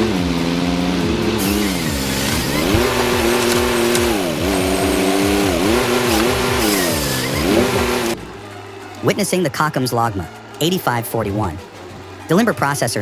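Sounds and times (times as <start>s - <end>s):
machine engine running hard: 0.0s - 8.3s.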